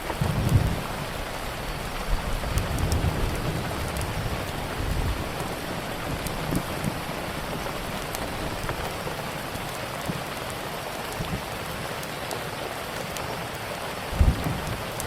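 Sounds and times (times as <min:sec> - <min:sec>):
steady rain: 0:00.0 - 0:15.0
low rumble of thunder: 0:00.1 - 0:09.7, 0:14.2 - 0:15.0.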